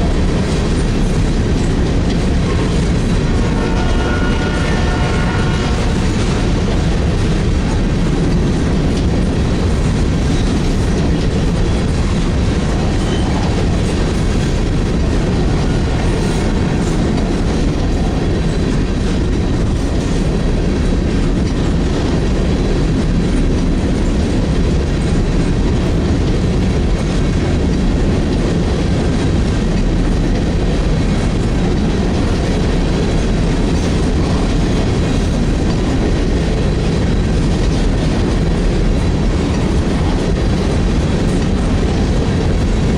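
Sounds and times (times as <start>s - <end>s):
heavy train rumble: 0.0s - 42.9s
train wheels clattering over joints: 0.0s - 42.9s.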